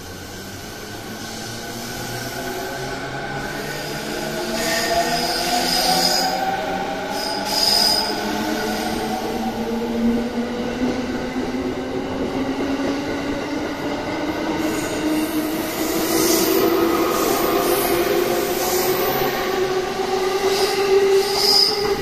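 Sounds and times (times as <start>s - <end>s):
high squeal: 3.6s - 9.0s, 20.4s - 22.0s.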